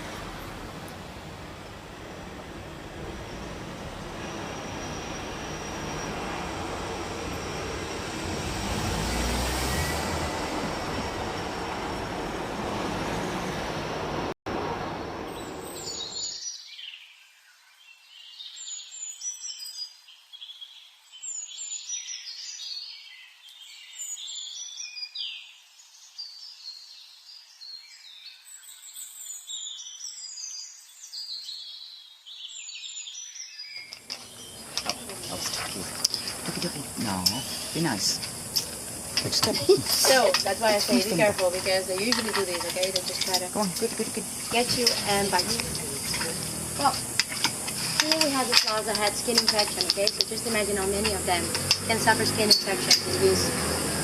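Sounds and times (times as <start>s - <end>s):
small birds chirping: 15.3s - 54.0s.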